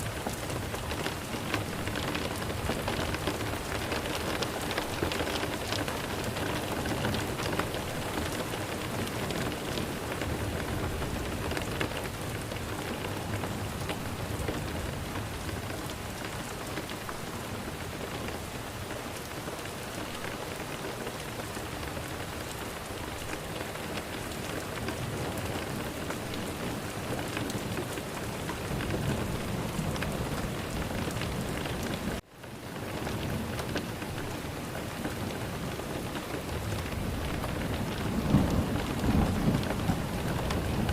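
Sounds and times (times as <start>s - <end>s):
heavy rain falling: 0.0s - 40.9s
low rumbles of thunder: 36.0s - 40.9s.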